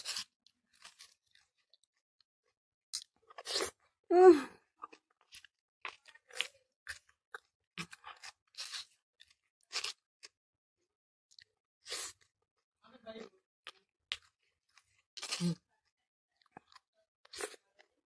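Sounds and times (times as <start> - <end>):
wet chewing clicks and smacks: 4.7 - 10.4.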